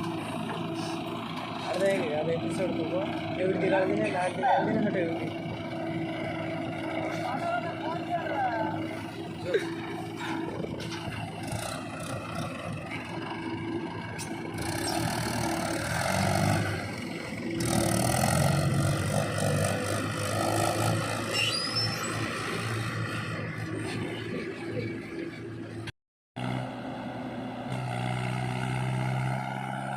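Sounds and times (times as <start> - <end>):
diesel engine working: 0.0 - 29.9
high squeal: 21.2 - 22.5.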